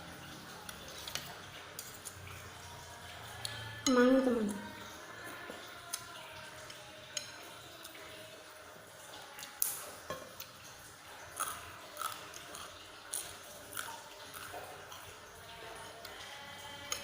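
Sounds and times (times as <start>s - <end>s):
cutlery clinking against bowl: 0.7s - 2.2s, 16.8s - 17.0s
chewing and eating smacks: 11.3s - 15.1s.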